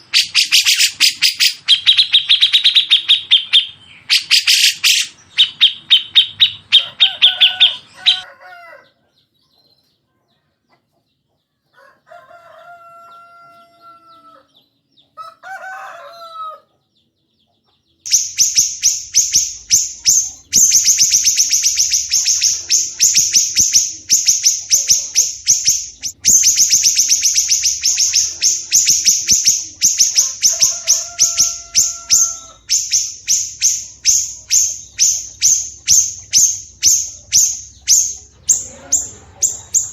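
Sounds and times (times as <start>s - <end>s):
harsh chattering bird trills: 0.0s - 8.2s, 18.1s - 39.9s
whistled bird calls: 0.0s - 8.2s, 18.1s - 39.9s
songbird chattering: 0.0s - 8.3s, 18.0s - 39.9s.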